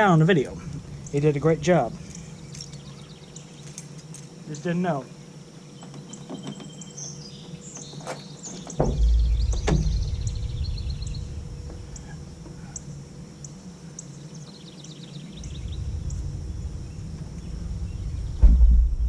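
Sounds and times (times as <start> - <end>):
birds chirping and trilling: 0.0 - 19.0
microphone handling rumble: 8.6 - 13.2, 15.4 - 19.0
sharp thump: 8.8 - 11.8, 18.4 - 19.0.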